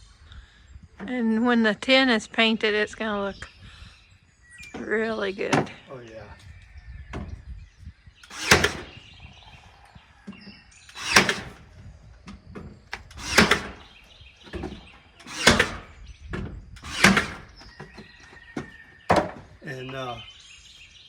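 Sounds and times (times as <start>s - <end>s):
loud short thuds: 8.3s - 9.0s, 14.5s - 19.6s.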